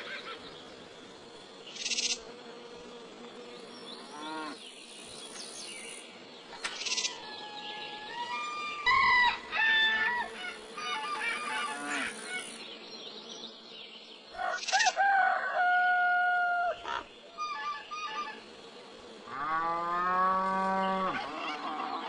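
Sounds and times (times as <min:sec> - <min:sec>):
farm animal calls: 0:20.6 - 0:22.0.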